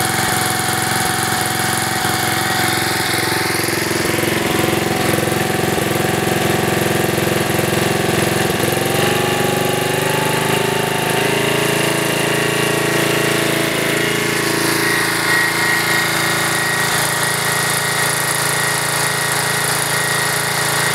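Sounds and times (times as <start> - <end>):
lawn mower engine running: 0.0 - 20.9
thin high whine: 12.7 - 20.9.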